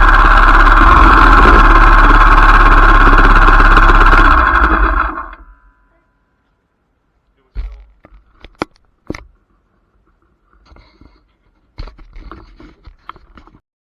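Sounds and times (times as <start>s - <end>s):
scraping rustling noise: 7.6s - 13.6s.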